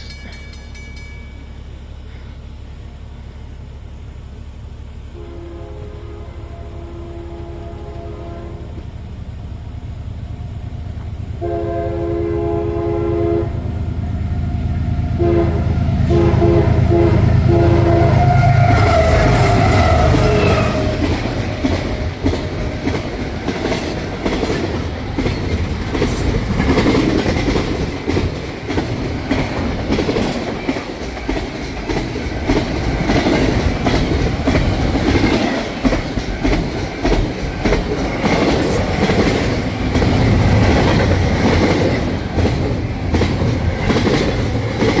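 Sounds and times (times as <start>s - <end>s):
wheels clicking over rail joints: 0.0s - 2.8s, 18.2s - 45.0s
diesel locomotive engines: 0.0s - 45.0s
train horn blasts: 5.1s - 9.0s, 11.4s - 23.0s
freight cars clattering past: 16.8s - 45.0s.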